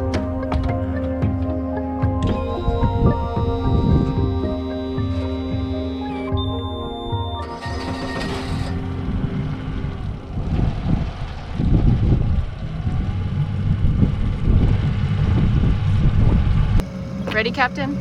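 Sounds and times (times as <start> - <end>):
background music: 0.0 - 11.6
engine rumbling: 0.0 - 18.0
wind buffeting microphone: 8.1 - 18.0.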